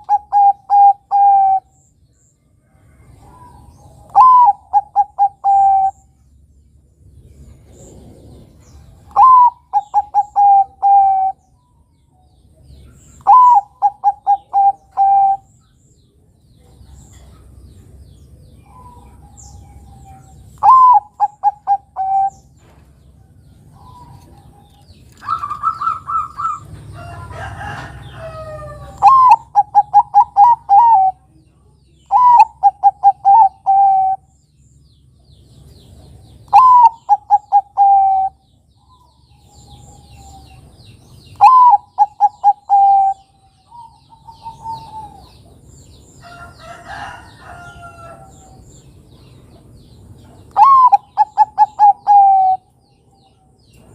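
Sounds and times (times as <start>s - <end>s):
dove cooing: 0.0s - 1.8s, 3.1s - 6.1s, 7.7s - 11.4s, 13.0s - 15.5s, 18.6s - 22.5s, 23.7s - 26.7s, 27.3s - 31.3s, 32.1s - 34.3s, 36.5s - 40.7s, 41.3s - 45.5s, 50.5s - 52.7s
noisy bird call: 0.0s - 2.0s, 2.9s - 6.3s, 7.4s - 11.8s, 12.6s - 15.8s, 16.9s - 34.8s, 36.3s - 53.9s.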